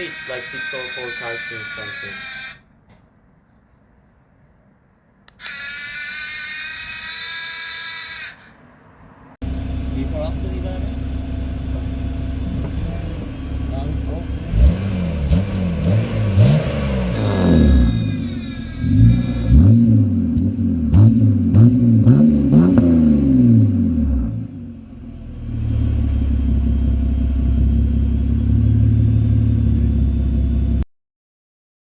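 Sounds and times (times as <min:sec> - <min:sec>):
car engine idling: 0:08.6 - 0:30.8
car engine revving: 0:08.9 - 0:30.8.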